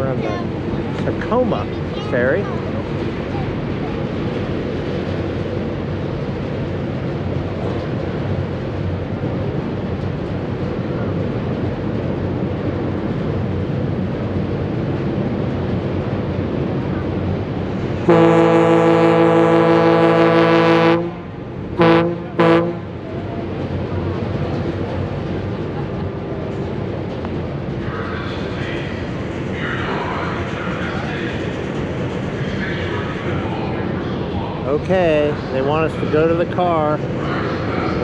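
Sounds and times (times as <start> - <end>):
ship engine rumble: 0.0 - 38.0
wind rumble: 0.0 - 38.0
deep ship's horn blasts: 18.0 - 23.6.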